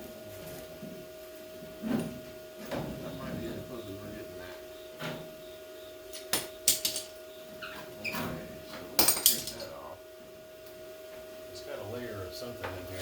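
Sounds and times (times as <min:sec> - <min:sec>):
faint hum: 0:00.0 - 0:13.0
metal tools clanking: 0:06.2 - 0:07.2, 0:09.0 - 0:09.8.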